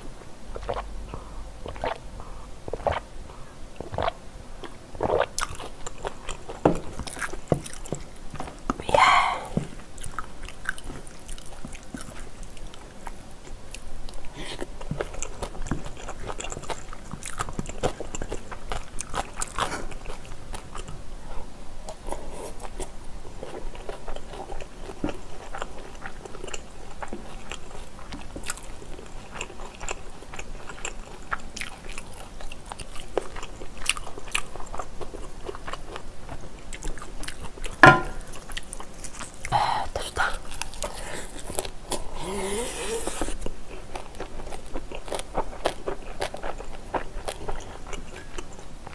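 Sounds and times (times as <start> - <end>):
chewing and biting mouth noises: 0.5 - 48.9.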